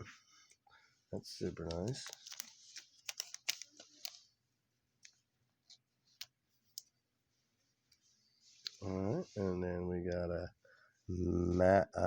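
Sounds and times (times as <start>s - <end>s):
card sleeves clicking and crinkling: 1.6s - 4.3s.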